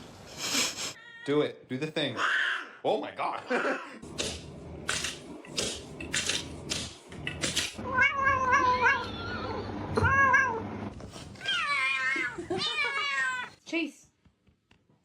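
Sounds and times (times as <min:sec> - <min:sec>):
cat meowing: 0:07.8 - 0:10.6, 0:11.4 - 0:13.6.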